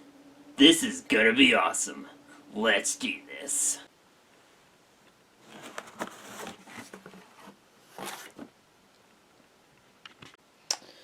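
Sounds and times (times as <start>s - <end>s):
cardboard and plastic rustling: 5.4s - 8.6s.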